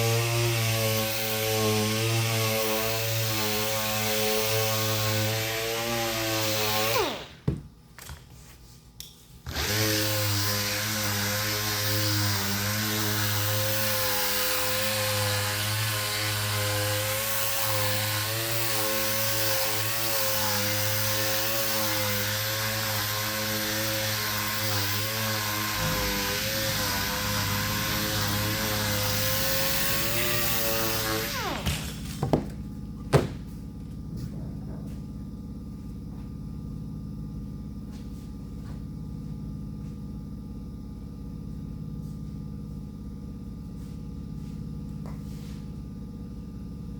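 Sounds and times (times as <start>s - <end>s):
electric sander running: 0.0s - 7.4s, 9.5s - 32.7s
sharp knocks: 31.6s - 33.5s.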